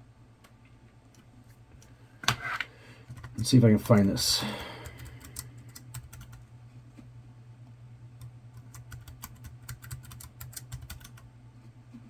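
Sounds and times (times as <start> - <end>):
low steady hum: 0.0 - 12.0
computer keyboard typing: 3.1 - 6.5, 8.2 - 11.3.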